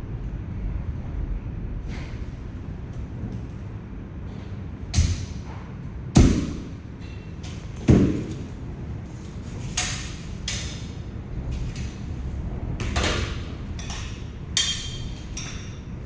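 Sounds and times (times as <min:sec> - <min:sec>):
shelf parts knocking and thumping: 0:05.0 - 0:08.7.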